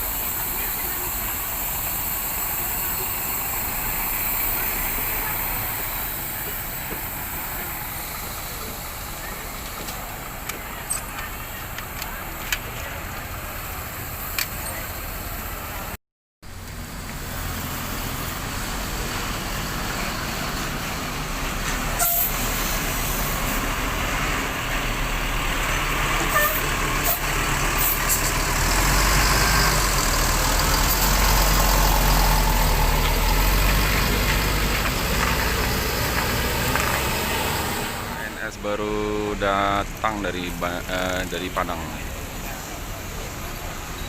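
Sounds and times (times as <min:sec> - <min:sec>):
diesel bus engine running: 0:00.0 - 0:44.0
air brake hisses: 0:22.0 - 0:23.5.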